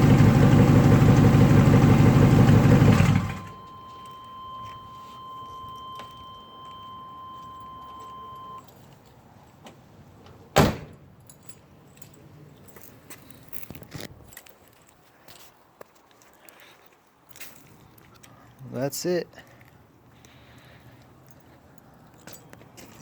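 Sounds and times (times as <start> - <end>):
car engine: 0.0 - 3.9
high warning tone: 3.0 - 8.7.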